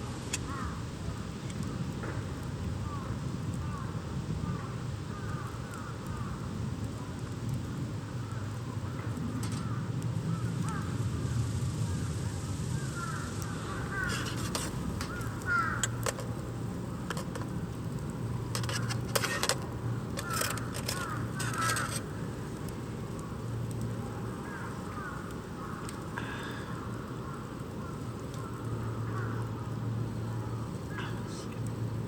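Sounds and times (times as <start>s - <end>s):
low background rumble: 0.0s - 32.0s
crows cawing: 0.4s - 0.8s, 2.8s - 6.5s, 8.2s - 11.0s, 11.9s - 16.3s, 20.2s - 22.3s, 24.2s - 29.7s, 30.3s - 31.4s.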